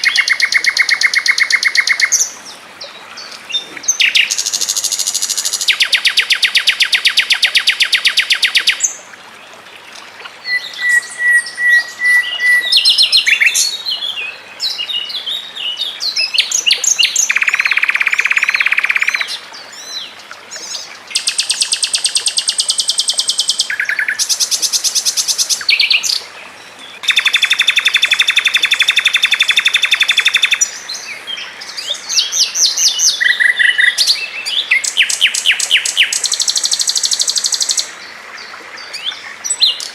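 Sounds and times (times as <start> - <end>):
songbird trills and chirps: 0.0 - 8.9, 10.4 - 26.3, 26.9 - 38.0.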